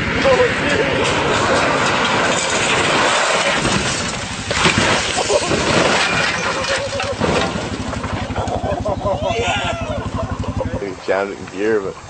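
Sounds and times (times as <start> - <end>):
continuous loud noise: 0.0 - 12.0
car crash with breaking glass: 0.1 - 8.1.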